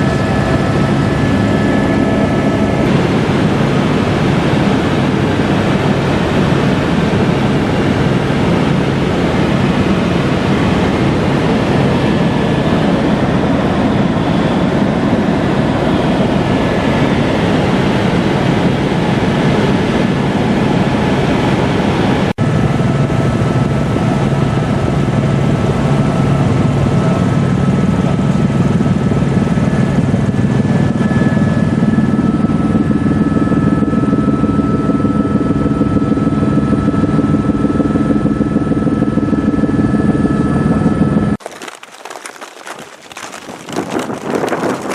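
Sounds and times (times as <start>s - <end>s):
helicopter drone: 0.0s - 21.2s.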